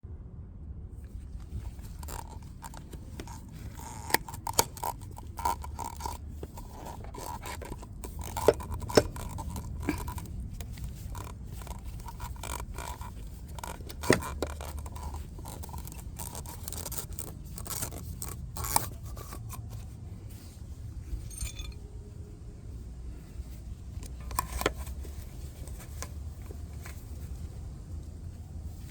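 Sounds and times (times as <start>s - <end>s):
steady low hum: 0.0s - 28.9s
scraping and handling noises: 1.0s - 22.0s, 23.1s - 28.9s
sharp metallic clicks and clinks: 21.2s - 21.8s.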